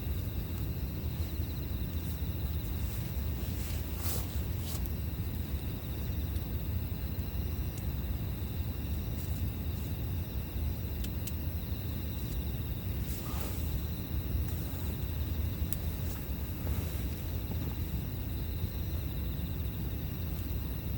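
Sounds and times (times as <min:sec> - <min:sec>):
campfire crackling: 0:00.0 - 0:20.7
insects trilling: 0:00.0 - 0:20.9
fire snaps: 0:03.9 - 0:06.5, 0:09.2 - 0:18.4.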